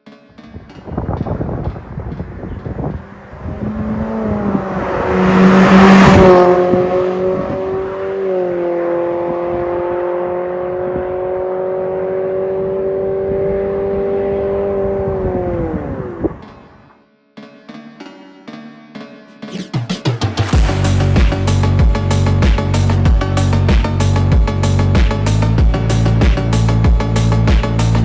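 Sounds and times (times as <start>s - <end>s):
car exhaust note: 1.2s - 16.8s.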